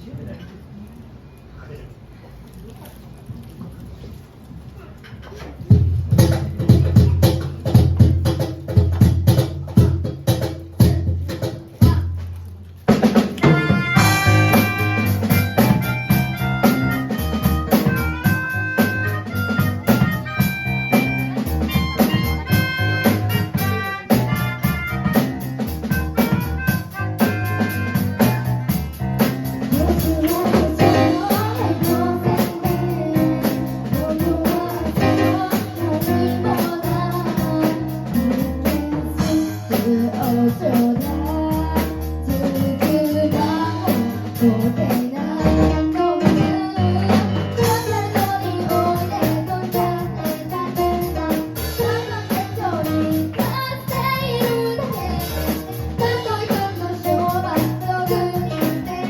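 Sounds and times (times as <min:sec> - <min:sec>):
drum kit: 0:05.2 - 0:59.0
keyboard: 0:13.5 - 0:59.0
person singing: 0:29.6 - 0:59.0.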